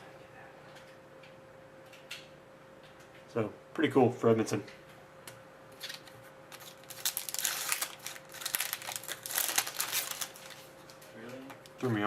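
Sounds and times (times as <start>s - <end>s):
card packaging crinkling: 5.8s - 11.0s.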